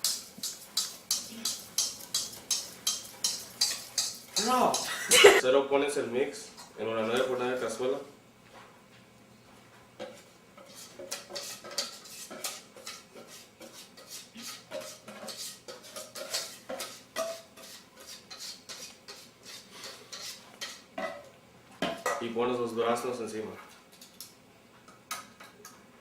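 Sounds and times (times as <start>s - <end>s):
utensil scraping baking pan: 10.6s - 20.9s.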